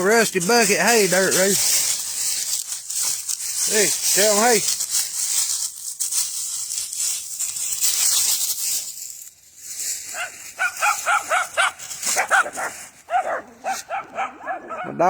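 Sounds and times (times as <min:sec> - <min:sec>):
rustling crunching noise: 0:00.0 - 0:15.0
small dog barking: 0:10.1 - 0:15.0.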